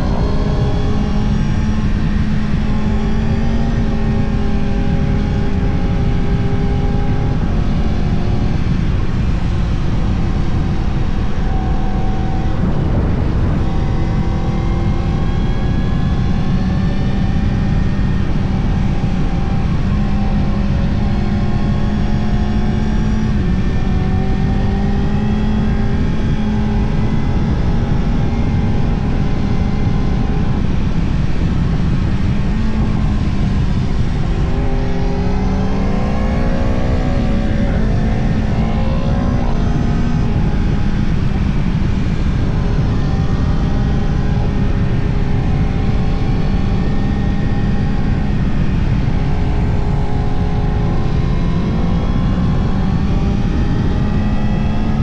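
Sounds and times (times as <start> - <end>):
motorcycle engine revving: 0.0 - 55.0
road and wind noise: 0.0 - 55.0.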